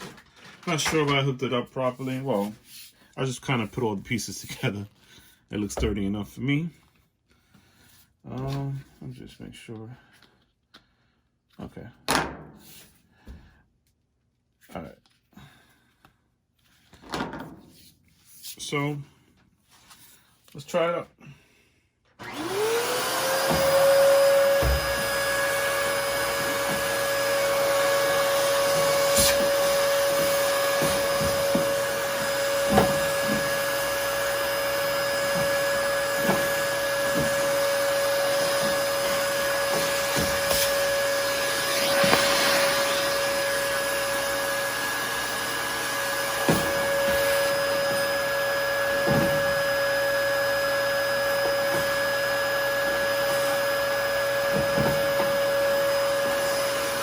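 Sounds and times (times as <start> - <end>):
vacuum cleaner whining: 22.2 - 57.0.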